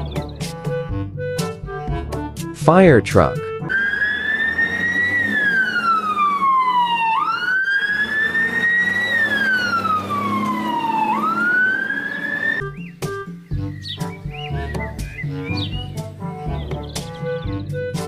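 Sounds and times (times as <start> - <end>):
fire truck siren wailing: 3.6 - 12.7.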